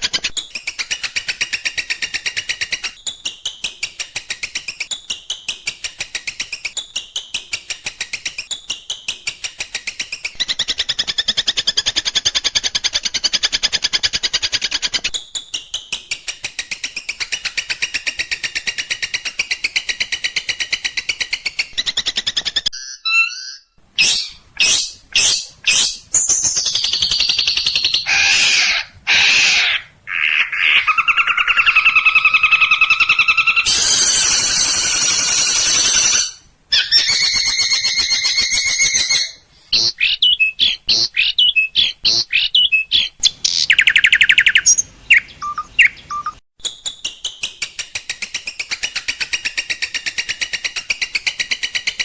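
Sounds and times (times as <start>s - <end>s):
songbird trill: 22.8s - 46.4s
bird calls and whistled phrases: 22.8s - 47.6s.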